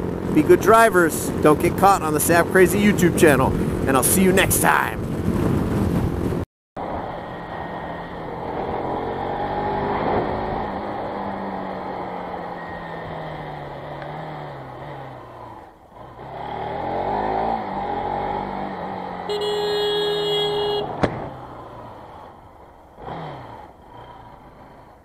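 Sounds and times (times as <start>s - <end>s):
motorcycle engine revving: 6.8s - 25.0s
horn sounding: 19.2s - 21.0s.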